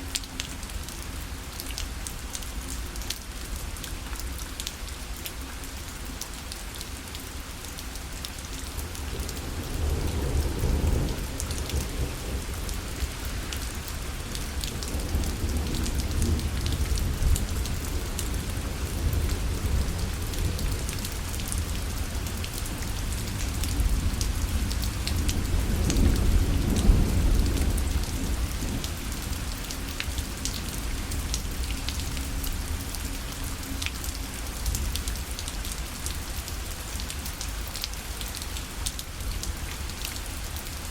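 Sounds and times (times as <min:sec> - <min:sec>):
rain on a parasol: 0:00.0 - 0:40.9
low rumbles of thunder: 0:09.1 - 0:32.8.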